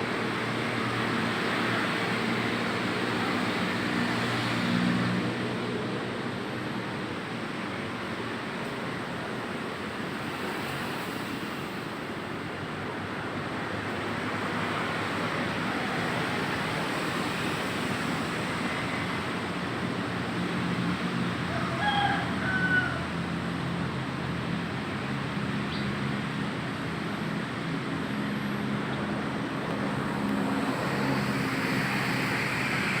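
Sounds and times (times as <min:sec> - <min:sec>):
vehicle engine hum: 0:00.0 - 0:33.0.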